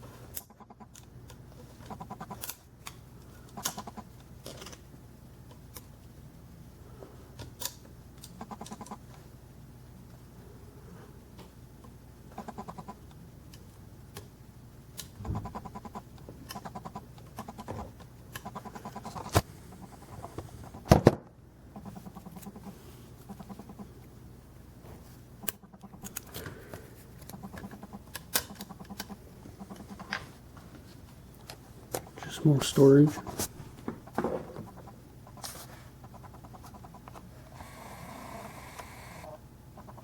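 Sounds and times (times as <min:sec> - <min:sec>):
rapid pulsing sounds: 0:27.3 - 0:30.1, 0:32.0 - 0:37.3.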